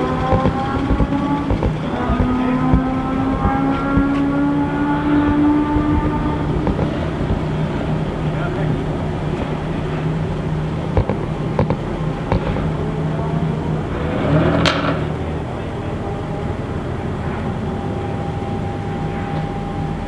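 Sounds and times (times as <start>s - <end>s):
sharp clicks: 0.0s - 7.6s, 11.0s - 12.7s
sports cars idling: 0.0s - 20.0s.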